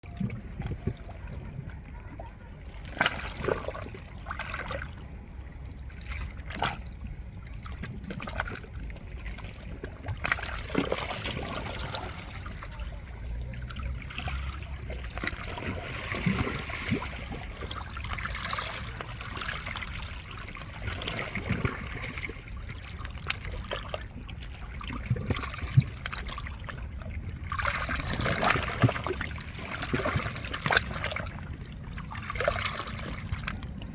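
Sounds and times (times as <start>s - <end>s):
water trickling and splashing: 0.0s - 33.9s
small waves washing over rocks: 9.7s - 33.9s.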